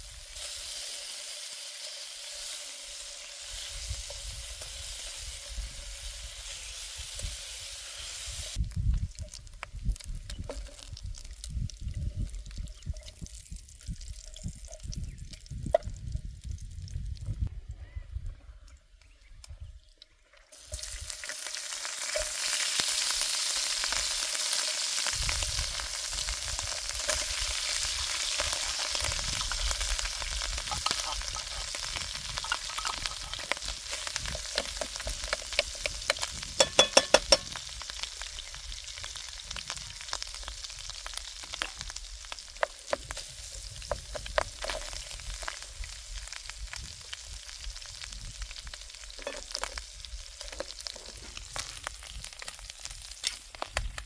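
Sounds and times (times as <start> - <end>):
food sizzling in a pan: 0.0 - 8.6, 20.5 - 53.8
utensil scraping and clicking on pan: 34.4 - 37.6.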